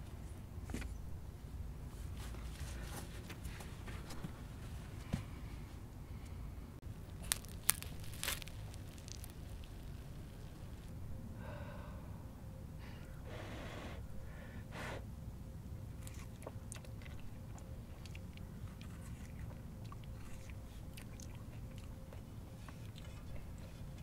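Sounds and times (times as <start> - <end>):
person chewing with wet clicks: 7.1 - 10.9, 15.9 - 24.0
soft scraping and tearing: 7.1 - 10.9.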